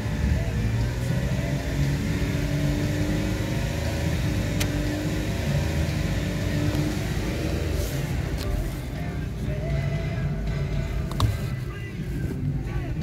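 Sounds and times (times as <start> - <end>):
car engine running at raised speed: 0.0 - 13.0.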